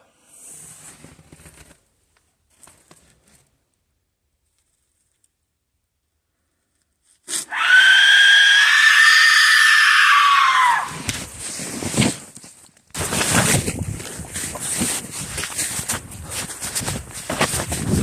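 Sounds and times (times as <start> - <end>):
high-pitched scream-like cry: 7.4 - 11.0
crunching and rustling: 10.9 - 18.0.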